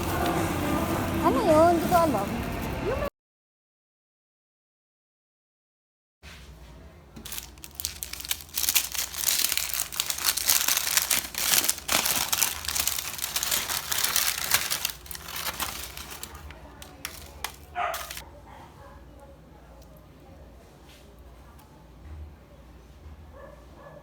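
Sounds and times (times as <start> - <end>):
wrapper crinkling and rustling: 7.2 - 18.2.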